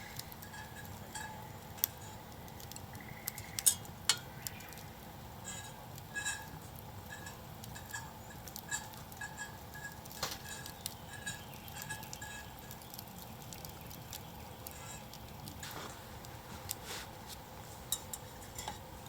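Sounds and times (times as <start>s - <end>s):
campfire crackling: 0.0s - 19.0s.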